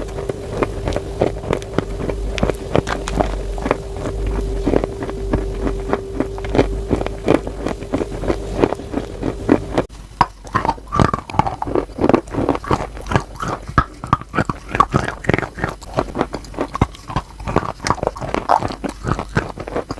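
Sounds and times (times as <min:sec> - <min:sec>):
chalk crunching being chewed: 0:00.0 - 0:19.9
steady hum: 0:00.0 - 0:19.9.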